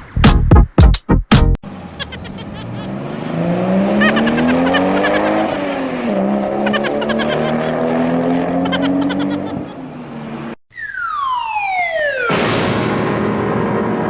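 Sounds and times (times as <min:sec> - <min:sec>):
engine revving: 0:02.6 - 0:10.6.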